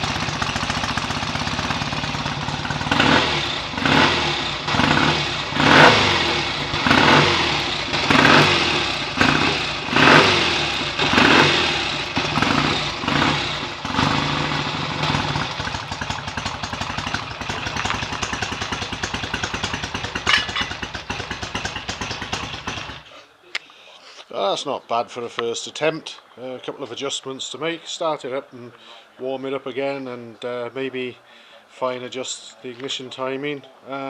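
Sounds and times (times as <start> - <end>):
motorcycle engine revving and idling: 0.0 - 23.1.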